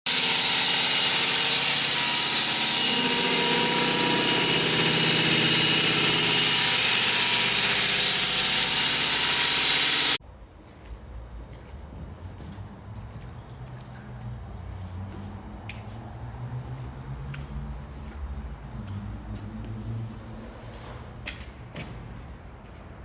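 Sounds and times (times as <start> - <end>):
power saw running: 0.1 - 10.2.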